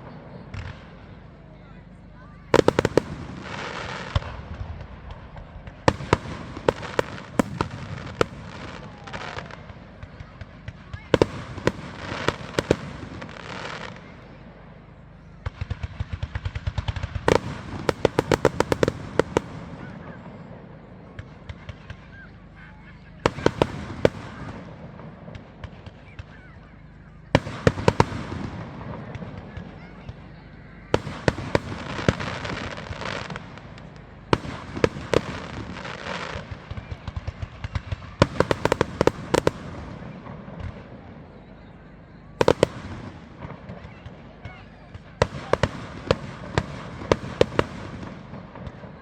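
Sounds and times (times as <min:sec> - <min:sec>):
fireworks bangs and crackling: 0:00.0 - 0:49.0
small firework pops: 0:00.5 - 0:00.9, 0:15.4 - 0:20.0, 0:30.9 - 0:41.0, 0:42.4 - 0:49.0.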